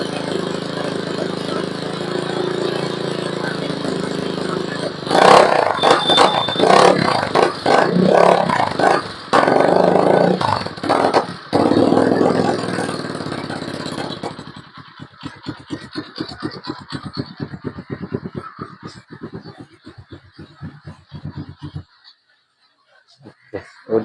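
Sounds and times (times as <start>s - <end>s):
dirt bike engine revving and idling: 0.0s - 22.1s.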